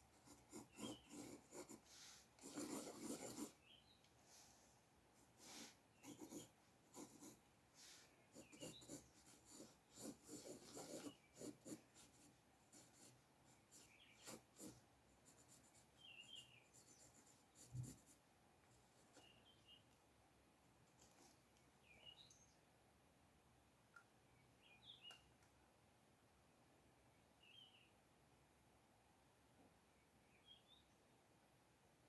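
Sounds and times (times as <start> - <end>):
pencil strokes scratching on paper: 0.0 - 3.7, 5.2 - 18.2.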